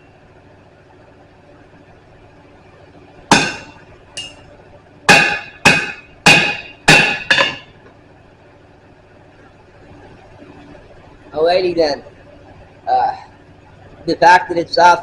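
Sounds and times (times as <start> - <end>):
hammer ringing on anvil: 3.3 - 4.4, 5.1 - 7.7.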